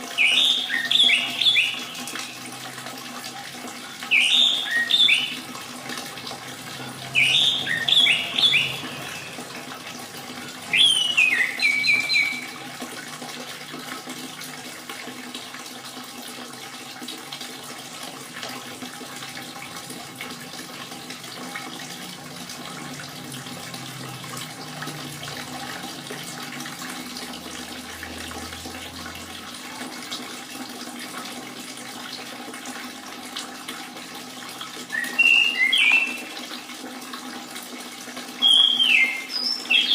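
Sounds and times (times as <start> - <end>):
running water trickling: 0.0 - 39.9
thrush singing whistled notes: 0.1 - 2.4, 4.0 - 5.5, 7.1 - 9.4, 10.7 - 12.6, 34.9 - 36.4, 38.4 - 39.9.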